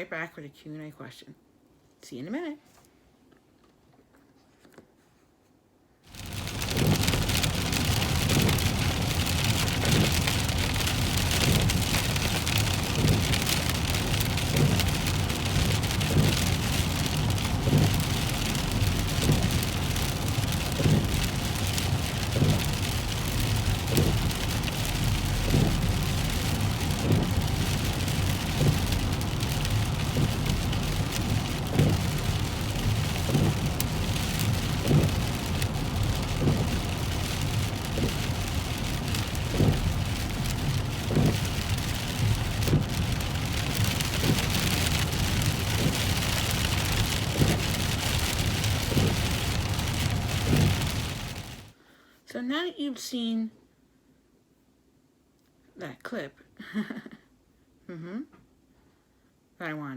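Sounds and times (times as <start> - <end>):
windshield wipers sweeping: 6.1 - 51.7
heavy rain drumming on car: 6.1 - 51.8
road rumble: 6.1 - 51.8.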